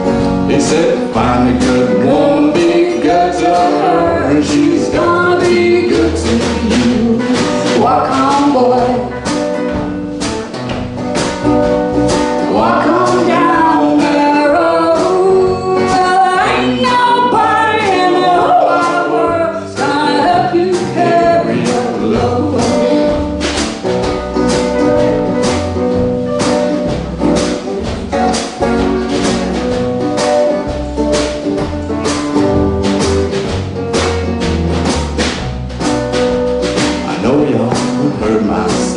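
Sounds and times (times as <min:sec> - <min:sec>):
instrumental accompaniment: 0:00.0 - 0:38.9
person singing: 0:00.5 - 0:09.2, 0:12.4 - 0:23.2, 0:37.0 - 0:38.9.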